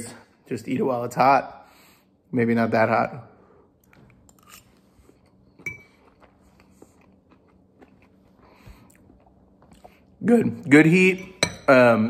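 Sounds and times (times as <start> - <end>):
person chewing: 3.8 - 10.2.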